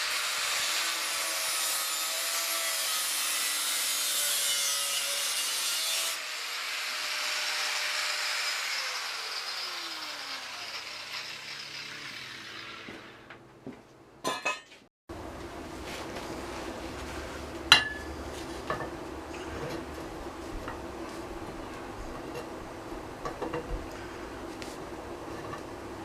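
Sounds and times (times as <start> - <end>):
power tool cutting steel: 0.0 - 13.3
tool winding down whine: 6.2 - 13.4
metal clanks: 14.2 - 14.8, 17.7 - 18.1.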